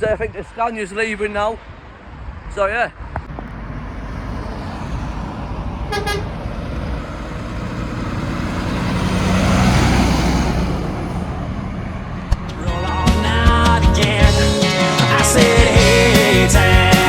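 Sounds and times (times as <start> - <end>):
truck diesel engine passing: 3.3 - 17.0
truck horn toot: 5.8 - 6.6.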